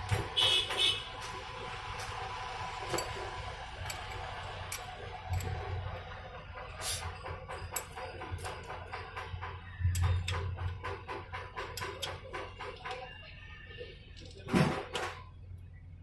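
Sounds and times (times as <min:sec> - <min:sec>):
tools and metal parts clicking: 0:02.8 - 0:13.2, 0:14.1 - 0:15.4.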